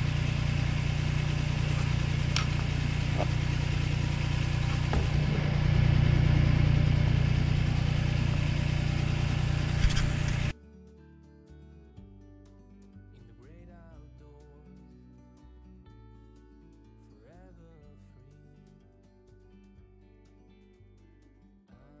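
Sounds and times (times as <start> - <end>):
tractor engine running: 0.0 - 10.5.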